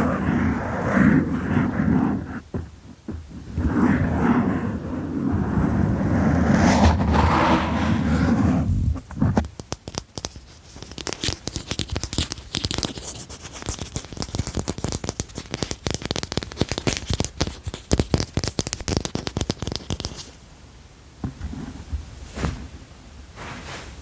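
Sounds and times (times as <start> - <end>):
tapping and scratching on hard object: 2.4 - 3.4, 9.0 - 20.4.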